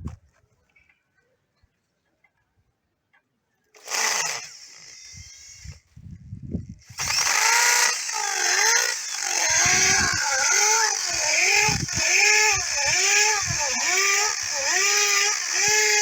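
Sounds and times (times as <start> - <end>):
electric power tool running: 3.8 - 5.9, 6.8 - 16.0.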